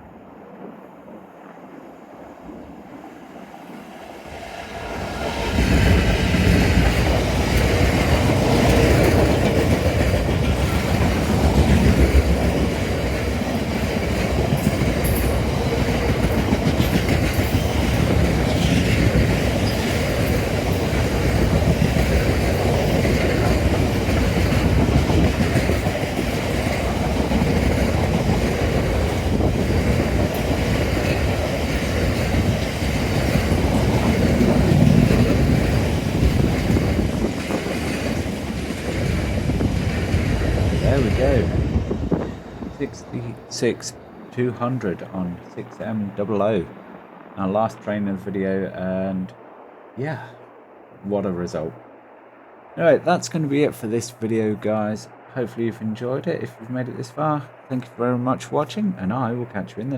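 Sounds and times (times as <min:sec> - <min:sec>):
diesel locomotive engine working: 0:02.8 - 0:50.6
wagon wheels clattering over rail joints: 0:05.3 - 0:44.4.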